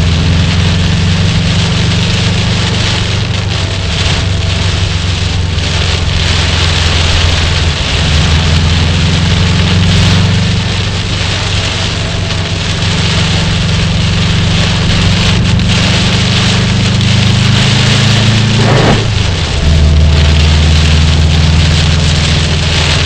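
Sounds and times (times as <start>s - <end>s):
car engine running: 0.0s - 23.0s
heavy rain on car: 0.0s - 23.0s.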